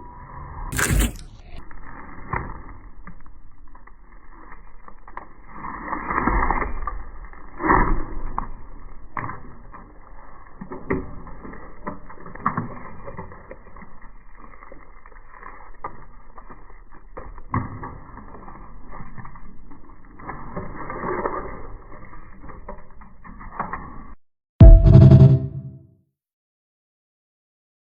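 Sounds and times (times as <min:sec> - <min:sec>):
drywall breaking and crunching: 0:00.7 - 0:01.4.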